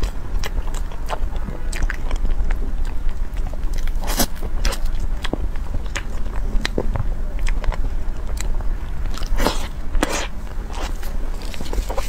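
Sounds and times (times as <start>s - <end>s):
chewing crunchy pastry: 0.0s - 12.0s.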